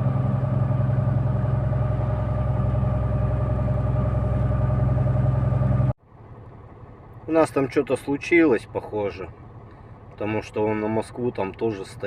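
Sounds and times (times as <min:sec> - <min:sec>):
truck diesel engine idling: 0:00.0 - 0:11.2.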